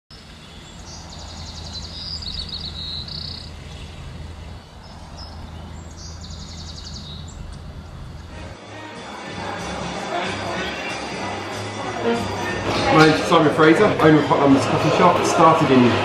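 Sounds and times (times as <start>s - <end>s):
songbirds singing: 0.1s - 8.4s
low rumble background noise: 0.1s - 8.6s.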